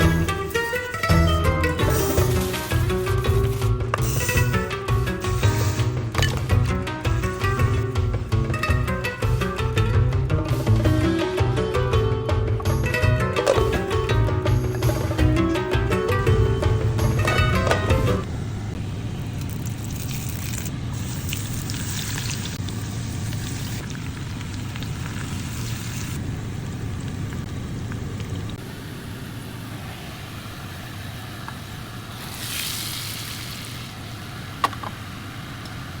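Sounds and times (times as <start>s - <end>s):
food sizzling in a pan: 0.0s - 9.6s, 24.9s - 26.2s, 28.7s - 36.0s
steady low rumble: 0.0s - 21.8s.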